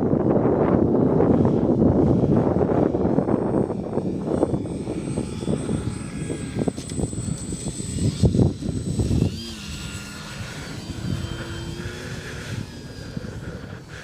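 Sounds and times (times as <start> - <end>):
model plane motor whine: 0.0 - 14.0
wind buffeting microphone: 0.0 - 14.0.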